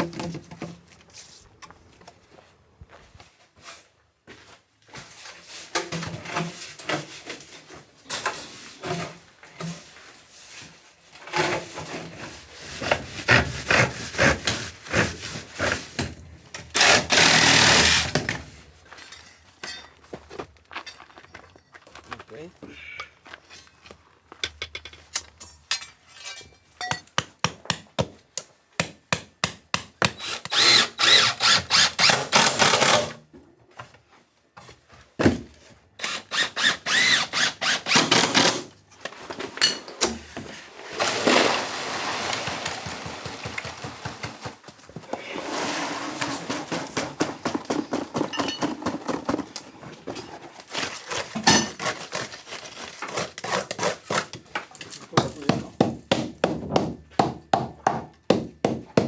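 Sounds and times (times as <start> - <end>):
power tool bursts: 16.8 - 18.2, 30.2 - 33.1.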